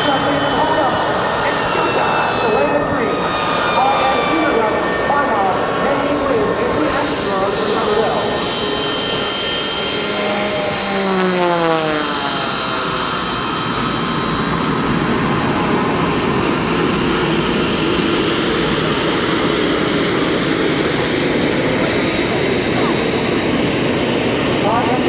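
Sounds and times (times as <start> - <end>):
airplane flying past: 0.0 - 25.0.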